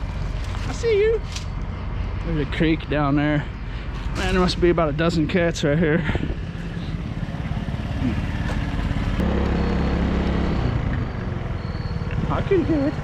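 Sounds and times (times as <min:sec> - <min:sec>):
vehicle engine running: 0:03.8 - 0:13.0.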